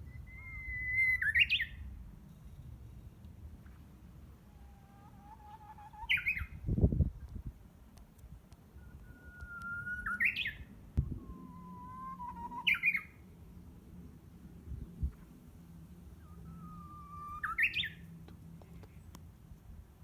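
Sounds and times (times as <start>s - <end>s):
bird singing whistle song: 0.0s - 1.9s, 6.0s - 6.6s, 8.8s - 13.3s, 16.2s - 18.2s.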